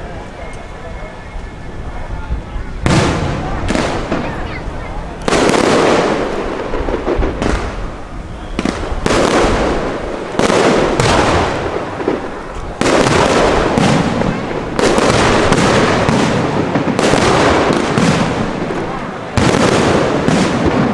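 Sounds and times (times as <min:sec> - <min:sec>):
fireworks bursting and crackling: 0:00.0 - 0:20.9.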